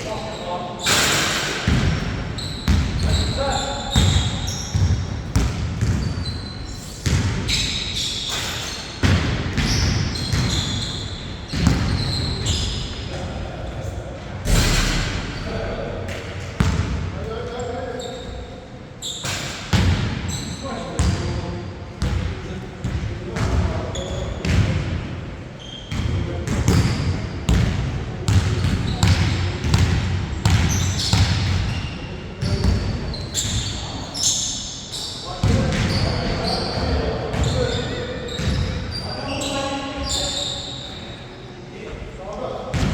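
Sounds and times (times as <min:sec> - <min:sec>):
sneakers squeaking: 0:00.0 - 0:13.4, 0:15.4 - 0:24.9, 0:25.6 - 0:41.4
basketball bouncing on court: 0:01.7 - 0:06.3, 0:07.0 - 0:07.6, 0:09.0 - 0:10.9, 0:11.5 - 0:12.5, 0:16.6 - 0:17.0, 0:25.9 - 0:33.6, 0:35.4 - 0:38.8.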